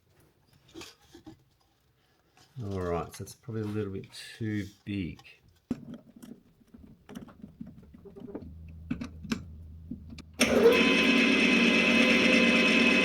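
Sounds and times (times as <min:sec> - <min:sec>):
handling clicks and knocks: 0:04.9 - 0:10.4
electric power tool running: 0:10.4 - 0:13.0.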